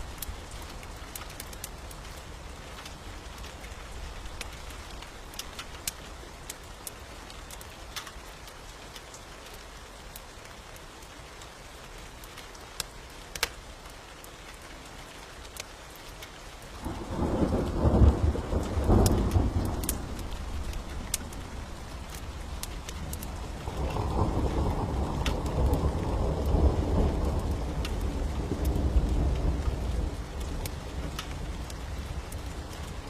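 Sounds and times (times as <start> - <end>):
steady rain: 0.0 - 33.0
thunder rumbling: 16.8 - 33.0.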